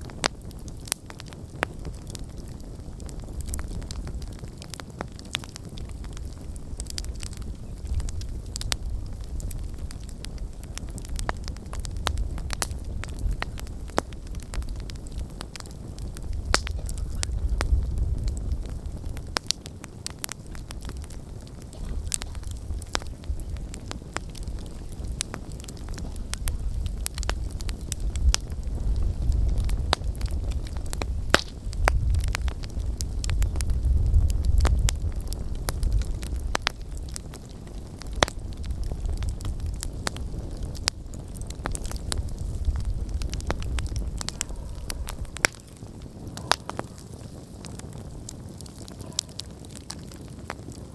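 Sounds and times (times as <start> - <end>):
campfire crackling and popping: 0.0 - 50.9
low uneven rumble: 20.2 - 35.2.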